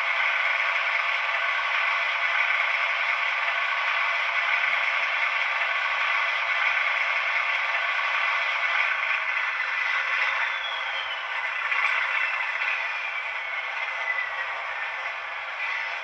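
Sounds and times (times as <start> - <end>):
diesel locomotive engine running: 0.0 - 16.0.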